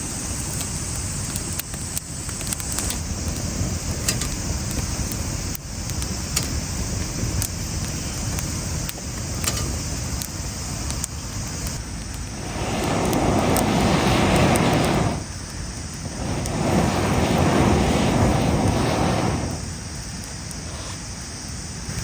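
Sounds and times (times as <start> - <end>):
campfire crackling and popping: 0.0 - 22.0
steady low rumble: 2.1 - 20.3
loud rushing noise: 12.2 - 15.4, 16.0 - 19.8.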